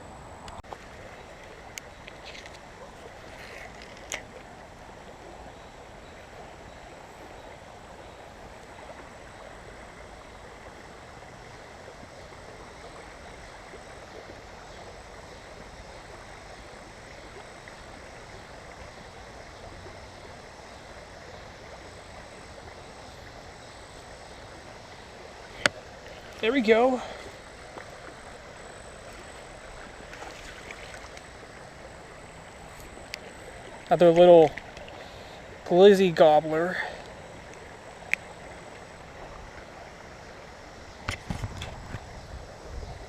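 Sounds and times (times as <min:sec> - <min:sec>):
creek water over rocks: 0:00.0 - 0:43.0.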